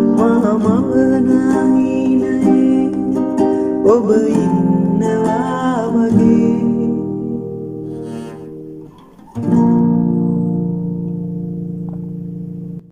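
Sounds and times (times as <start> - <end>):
guitar chords ringing: 0.0 - 12.9.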